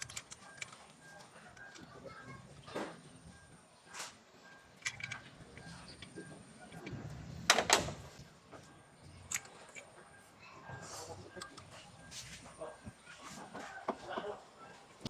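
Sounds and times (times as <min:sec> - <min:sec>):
tools and parts clicking: 0:00.0 - 0:01.9, 0:04.8 - 0:08.0, 0:09.2 - 0:10.0, 0:11.4 - 0:11.7.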